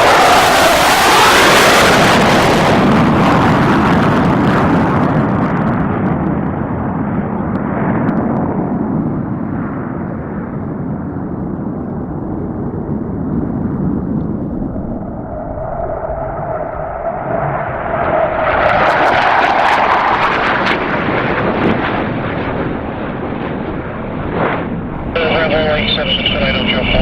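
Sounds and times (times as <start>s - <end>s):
jet flying past low: 0.0s - 27.0s.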